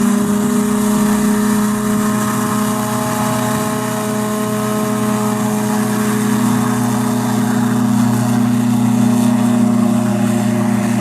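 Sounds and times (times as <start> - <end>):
aircraft engine droning: 0.0 - 11.0.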